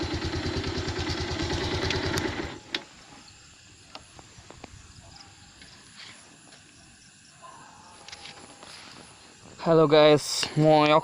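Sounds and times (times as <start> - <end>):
motorcycle engine running: 0.0 - 2.8.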